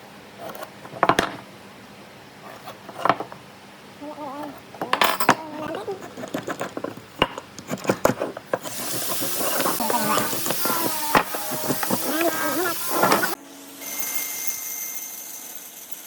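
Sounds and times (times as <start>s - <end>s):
person's voice: 4.0s - 6.2s, 9.4s - 13.4s.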